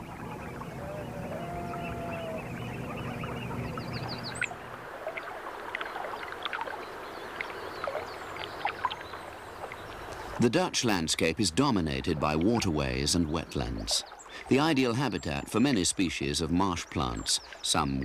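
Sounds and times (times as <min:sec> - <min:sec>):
low steady hum: 0:00.0 - 0:05.4
birds chirping and whistling: 0:00.2 - 0:04.6.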